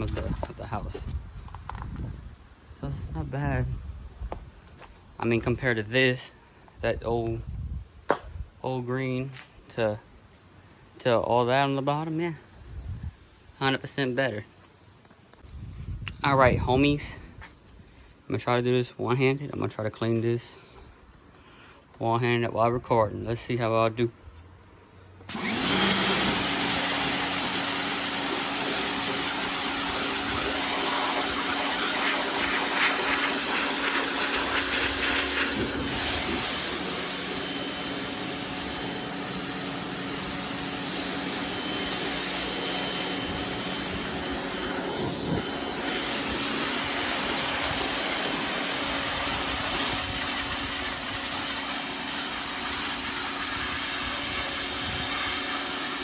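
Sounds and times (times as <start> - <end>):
pressure washer water jet hissing: 25.3 - 56.0
pump motor hum: 25.3 - 56.0.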